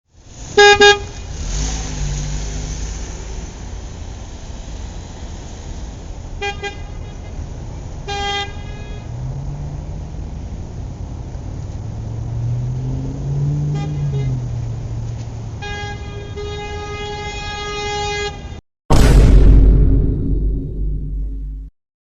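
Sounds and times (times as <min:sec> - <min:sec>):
vehicle horn toots: 0:00.6 - 0:01.2, 0:06.4 - 0:07.4, 0:08.1 - 0:09.3, 0:13.6 - 0:14.6, 0:15.6 - 0:18.6.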